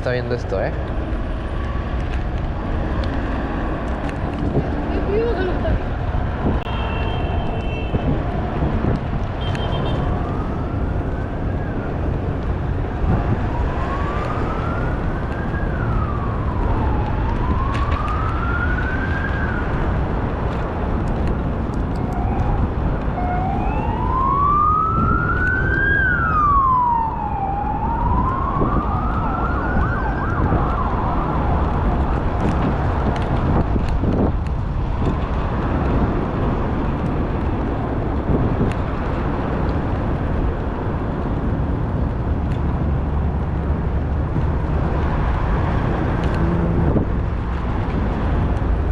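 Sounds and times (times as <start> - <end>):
emergency siren wailing: 0.5 - 5.4, 6.0 - 34.2.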